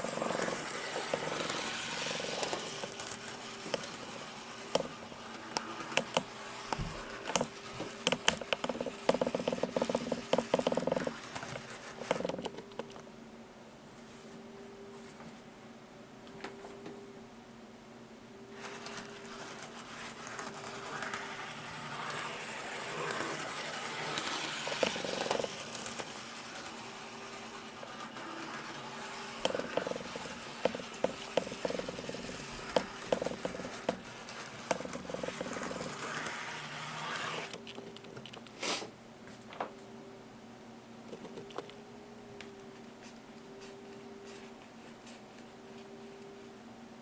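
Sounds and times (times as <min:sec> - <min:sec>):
model train motor whirring: 0:00.0 - 0:12.4, 0:18.6 - 0:37.6.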